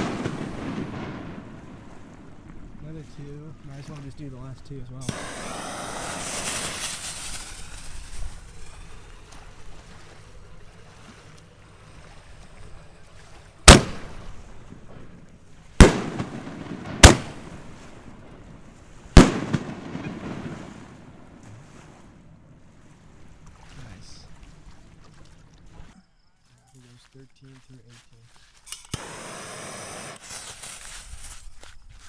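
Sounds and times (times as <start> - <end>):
firework hiss: 0.0 - 1.5, 5.0 - 14.6, 15.8 - 18.1, 19.2 - 21.1, 28.7 - 31.4
firework bangs echoing: 0.0 - 2.8, 5.0 - 10.8, 11.6 - 18.4, 19.1 - 21.4, 28.9 - 30.5.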